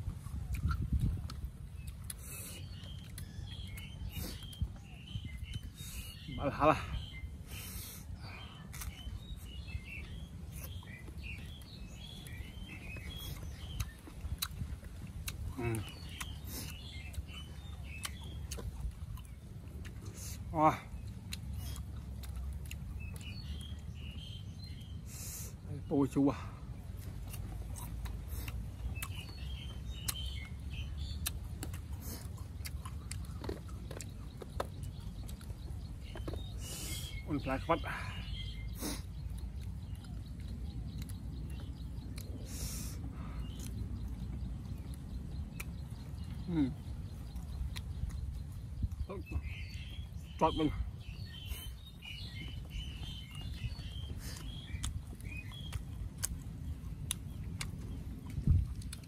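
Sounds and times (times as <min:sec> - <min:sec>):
low background rumble: 0:00.0 - 0:59.0
small birds chirping: 0:00.0 - 0:59.0
apple crunching: 0:08.6 - 0:23.5, 0:27.0 - 0:37.7, 0:51.4 - 0:59.0.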